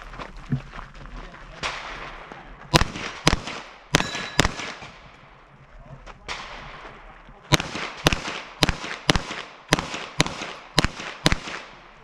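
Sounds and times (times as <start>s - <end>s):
pistol gunshots with echo: 1.6s - 5.2s, 6.3s - 12.0s.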